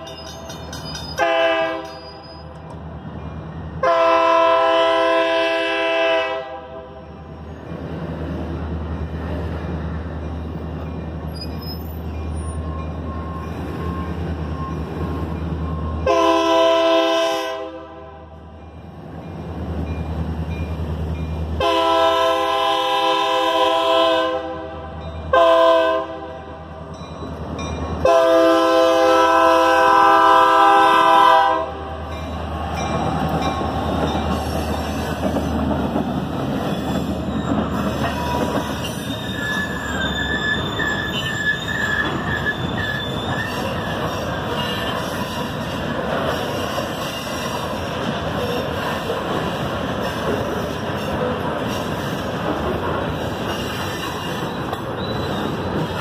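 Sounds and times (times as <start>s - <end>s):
locomotive engines rumbling: 0.0s - 56.0s
locomotive horn blasts: 1.2s - 2.2s, 3.8s - 7.0s, 16.0s - 18.4s, 21.6s - 26.6s, 28.0s - 32.0s
thin wheel squeal: 38.1s - 45.2s, 53.5s - 55.8s.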